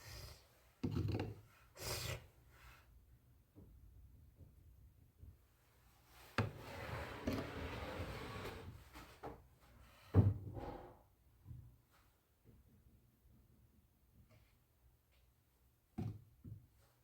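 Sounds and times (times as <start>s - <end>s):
scraping or sliding: 6.5s - 8.8s.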